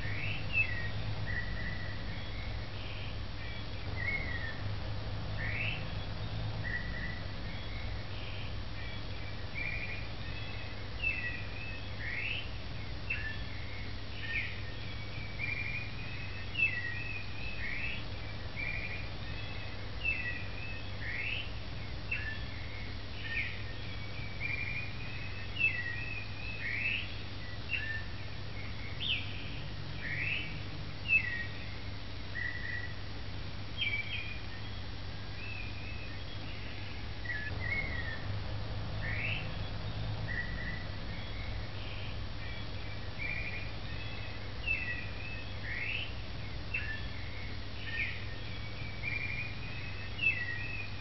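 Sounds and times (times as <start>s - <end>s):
low steady hum: 0.0s - 51.0s
small birds chirping: 0.0s - 51.0s.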